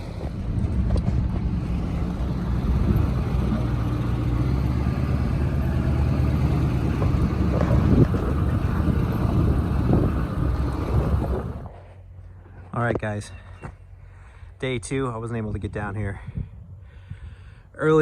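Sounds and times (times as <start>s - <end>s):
diesel engine running: 0.0s - 12.7s.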